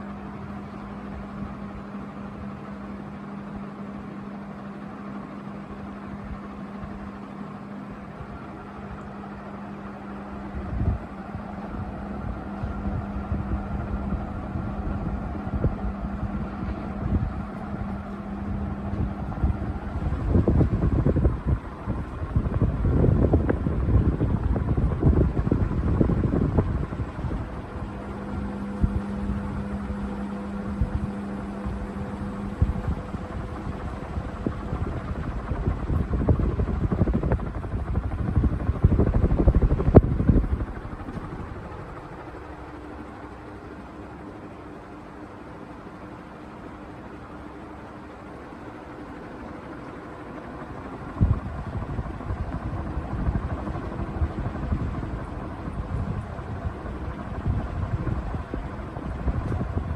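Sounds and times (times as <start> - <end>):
ceiling fan motor humming: 0.0 - 59.9
air buffeting microphone: 8.0 - 45.2, 49.4 - 59.9.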